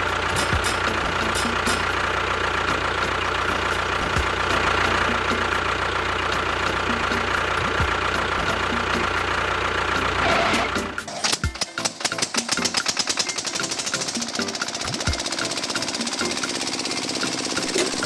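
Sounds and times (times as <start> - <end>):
small motor whining: 13.3 - 18.0.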